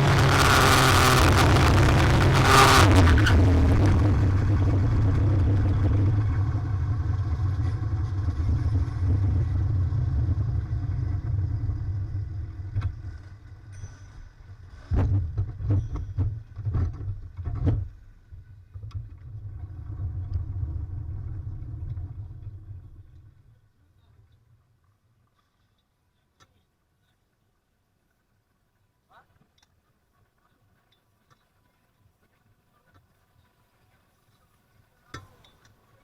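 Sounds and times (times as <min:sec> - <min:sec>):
muffled vehicle rumble: 0:00.0 - 0:24.2.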